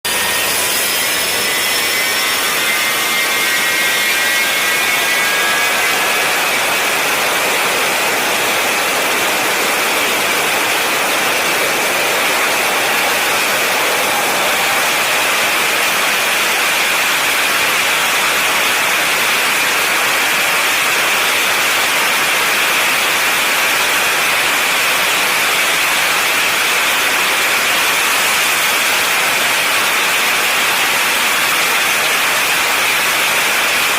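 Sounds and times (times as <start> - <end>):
jet engine roaring with whine: 0.1 - 24.4.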